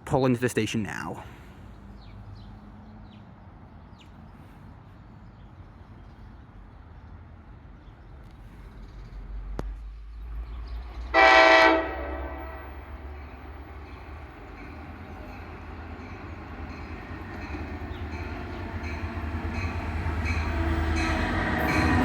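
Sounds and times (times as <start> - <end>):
train rumble: 0.9 - 22.0
train horn blast: 11.1 - 13.1.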